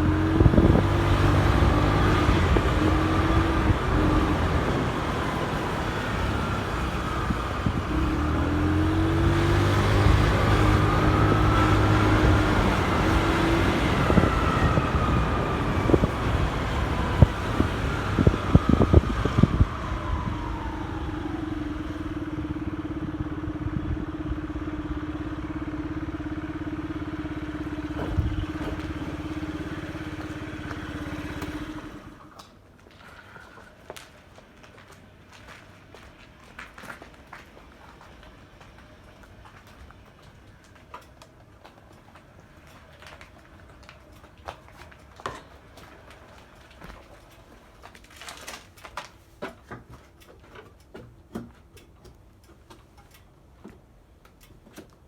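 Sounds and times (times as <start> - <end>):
motorcycle engine running: 21.1 - 32.3.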